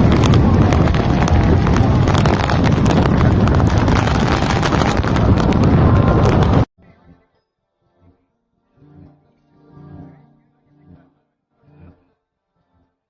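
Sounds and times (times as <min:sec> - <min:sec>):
heavy rain: 0:00.0 - 0:06.7
sharp rain taps: 0:00.0 - 0:06.7
wind buffeting microphone: 0:00.0 - 0:06.7.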